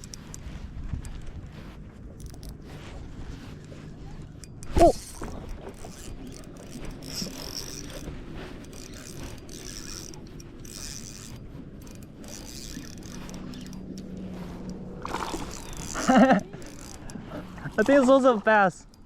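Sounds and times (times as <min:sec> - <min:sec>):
fishing reel cranking: 0:00.0 - 0:19.0.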